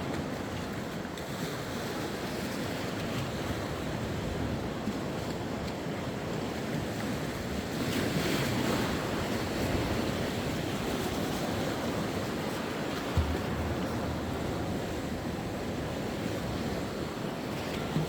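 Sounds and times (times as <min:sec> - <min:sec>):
sea waves breaking on shore: 0:00.0 - 0:18.0
low thump: 0:13.2 - 0:14.2.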